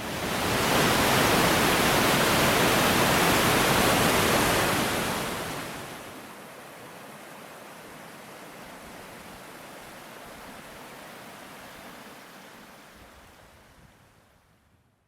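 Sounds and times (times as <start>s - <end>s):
waterfall rushing: 0.1s - 6.1s.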